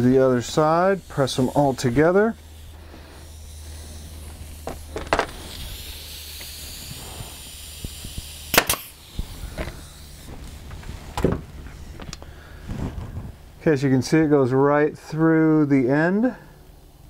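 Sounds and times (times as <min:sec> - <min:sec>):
steady low hum: 0:00.0 - 0:17.0
nail gun firing into wood: 0:08.5 - 0:09.0.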